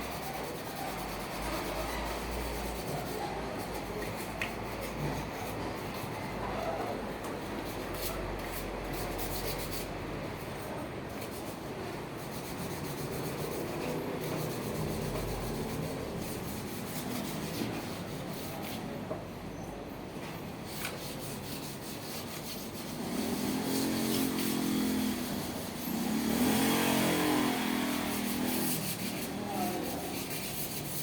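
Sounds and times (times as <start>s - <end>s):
rough rubbing and scrubbing: 12.3s - 18.8s, 20.7s - 31.0s.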